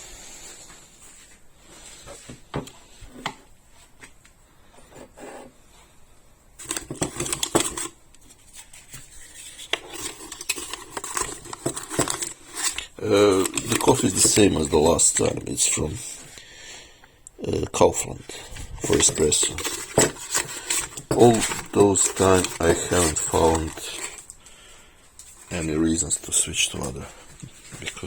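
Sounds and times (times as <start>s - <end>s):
metal parts scraping and rattling: 6.6s - 7.9s, 8.8s - 15.4s, 18.8s - 24.3s.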